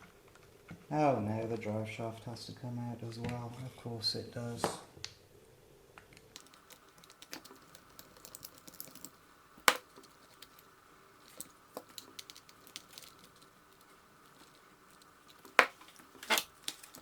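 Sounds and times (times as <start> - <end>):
hand tools clicking on plastic: 6.4 - 17.0.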